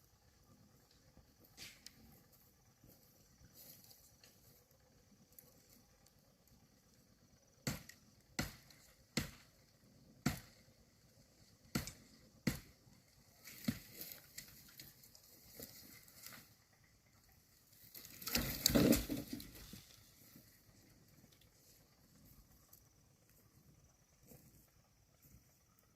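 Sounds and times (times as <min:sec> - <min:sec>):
sharp chopping strikes: 0:07.6 - 0:09.4, 0:10.2 - 0:10.6, 0:11.7 - 0:12.8
brush rustling and crunching: 0:13.4 - 0:16.6.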